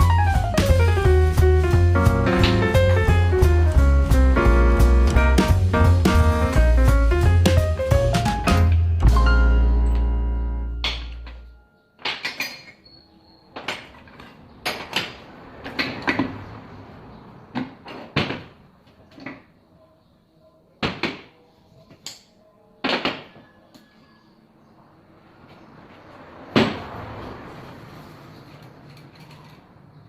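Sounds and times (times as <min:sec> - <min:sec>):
tools knocking and clattering: 0:10.8 - 0:12.9, 0:13.6 - 0:16.4.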